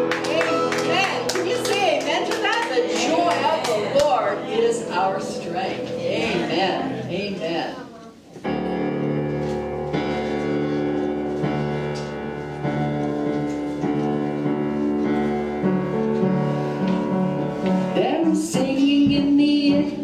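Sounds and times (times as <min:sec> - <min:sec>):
piano chords: 0:00.0 - 0:20.0.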